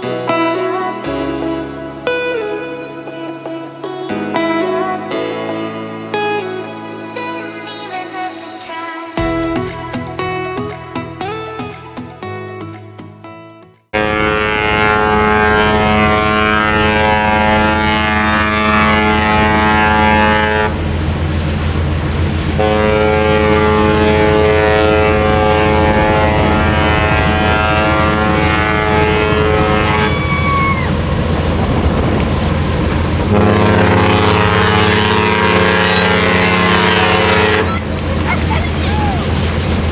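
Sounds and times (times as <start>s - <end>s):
ship horn blasts: 14.0s - 38.2s.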